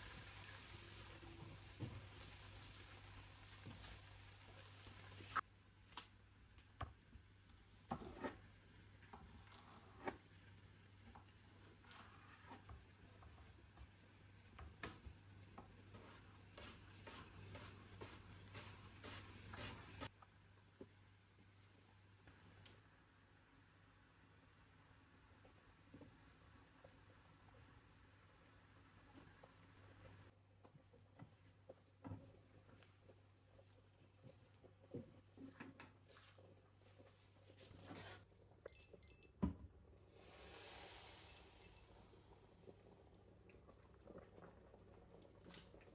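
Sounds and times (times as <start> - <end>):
soft hiss: 40.1 - 43.1.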